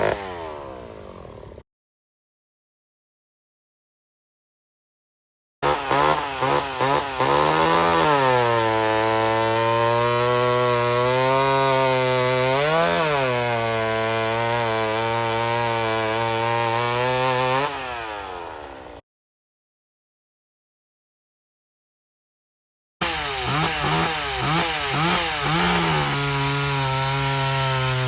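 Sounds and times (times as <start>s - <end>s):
chainsaw cutting wood: 0.0s - 1.6s, 5.6s - 19.0s, 23.0s - 28.0s.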